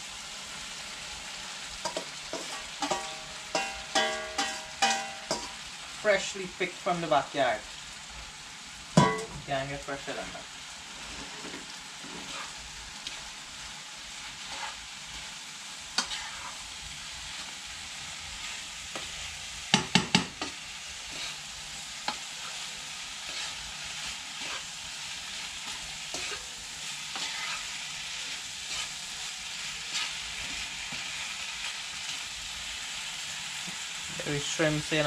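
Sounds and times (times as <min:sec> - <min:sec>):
food sizzling in a pot: 0:00.0 - 0:35.0
spoon stirring and scraping: 0:01.8 - 0:05.6, 0:11.0 - 0:13.2, 0:14.4 - 0:14.8, 0:16.0 - 0:16.6, 0:19.8 - 0:21.4, 0:22.0 - 0:32.2.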